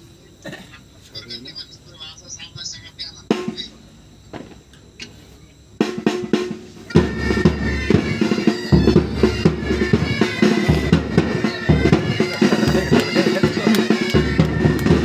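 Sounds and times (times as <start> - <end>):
pipe band playing: 5.8 - 15.0
snare drum strokes: 5.8 - 15.0.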